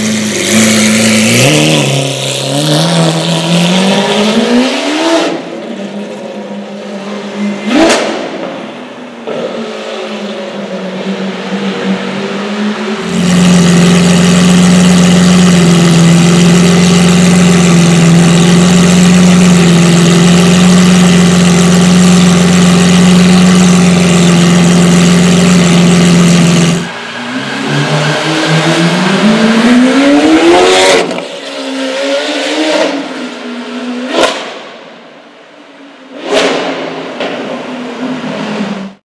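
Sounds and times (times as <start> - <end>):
car engine revving: 0.0 - 5.7, 11.3 - 34.8.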